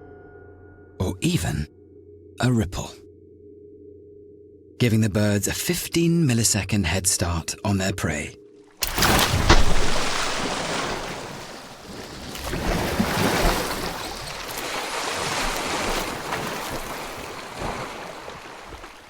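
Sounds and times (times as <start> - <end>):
rushing splashing water: 8.8 - 19.0.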